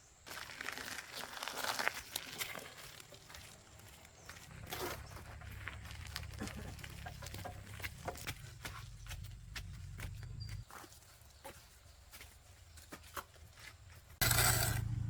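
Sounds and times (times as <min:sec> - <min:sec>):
low steady rumble: 0:04.5 - 0:10.6, 0:14.2 - 0:15.0.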